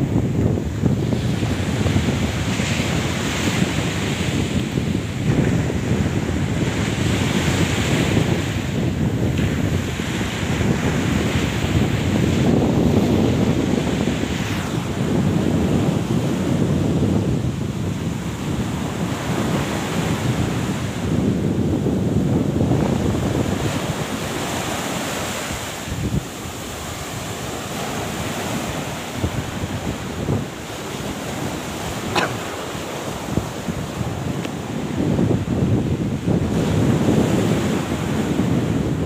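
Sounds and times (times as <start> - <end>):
surf washing: 0.0 - 39.0
wind buffeting microphone: 0.0 - 39.0.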